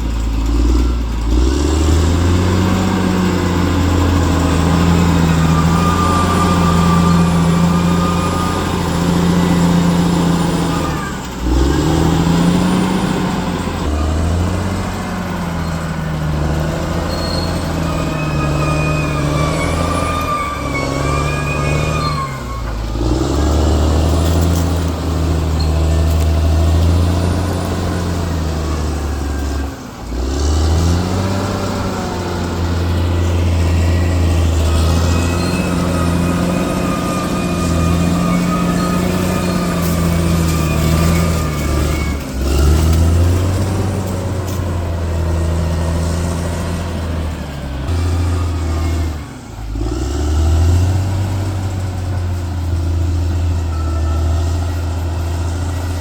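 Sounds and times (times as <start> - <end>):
bulldozer diesel engine working: 0.0 - 56.0
high squeal: 2.0 - 56.0.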